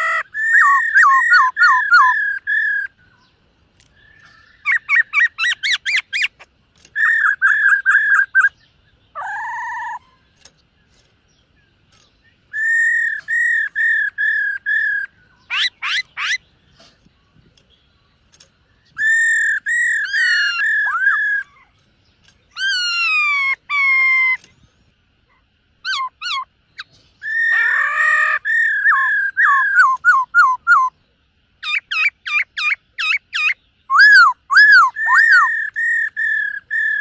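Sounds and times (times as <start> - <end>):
bird singing whistled phrases: 0.0 - 3.0, 12.5 - 16.4, 18.9 - 21.7, 25.8 - 31.0, 31.6 - 37.0.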